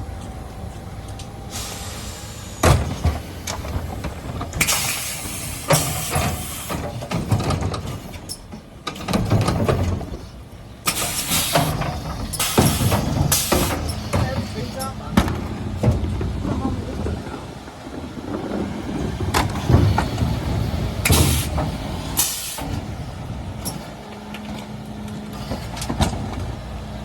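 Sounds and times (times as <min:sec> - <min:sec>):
refuse truck running: 0:00.0 - 0:27.0
bursts of hiss and clatter: 0:10.8 - 0:15.5, 0:16.2 - 0:23.0.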